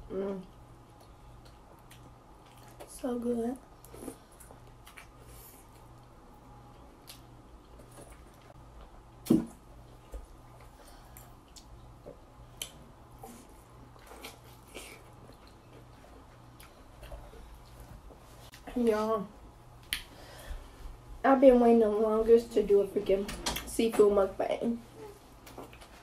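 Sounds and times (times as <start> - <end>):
soft chewing: 0.2 - 8.9, 9.8 - 18.7, 24.9 - 26.0.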